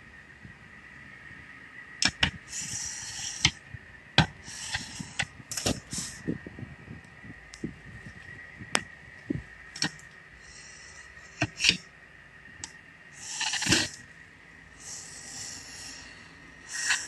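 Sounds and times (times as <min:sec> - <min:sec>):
short hissing scrape: 0:02.0 - 0:03.6, 0:04.4 - 0:06.2, 0:09.8 - 0:11.9, 0:13.1 - 0:14.1, 0:14.8 - 0:17.0.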